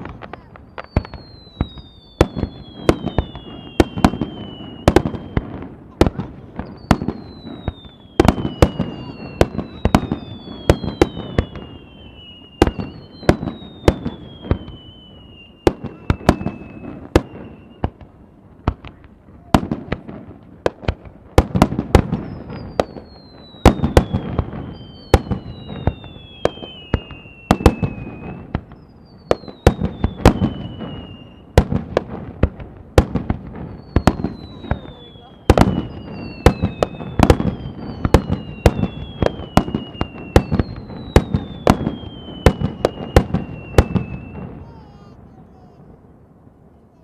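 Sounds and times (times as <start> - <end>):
falling firework whistles: 0.0 - 20.8, 21.6 - 46.1
fireworks bangs and crackles: 0.0 - 47.0.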